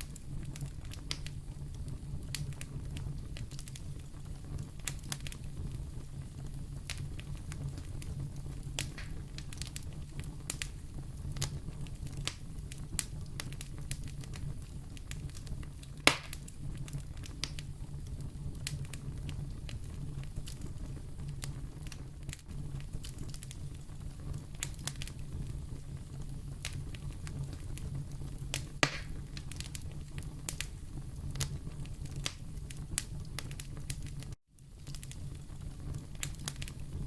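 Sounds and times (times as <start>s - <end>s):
wood fire crackling: 0.0s - 37.0s
loud fire pop: 8.8s - 9.8s, 16.0s - 16.6s, 28.5s - 30.7s.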